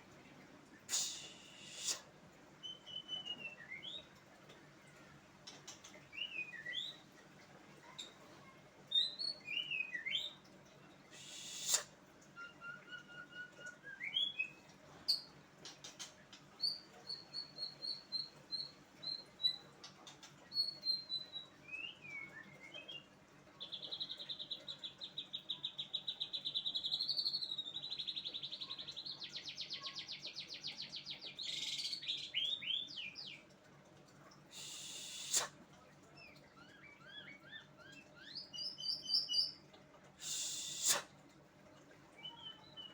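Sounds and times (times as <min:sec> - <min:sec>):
songbird singing: 0:42.1 - 0:42.9.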